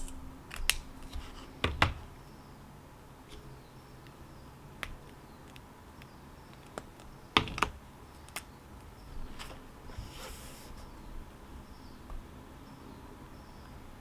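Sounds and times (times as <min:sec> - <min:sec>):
faint background hum: 0:00.0 - 0:14.0.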